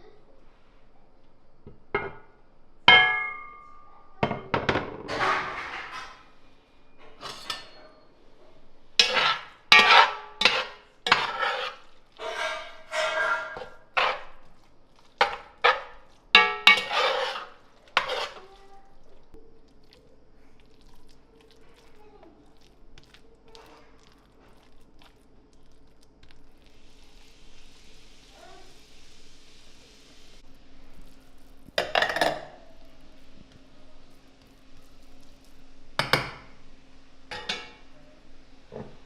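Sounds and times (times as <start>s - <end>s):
dishes and utensils clattering: 2.9s - 6.4s, 7.0s - 8.1s, 9.0s - 14.6s, 15.2s - 18.8s, 31.7s - 33.4s, 37.3s - 37.9s.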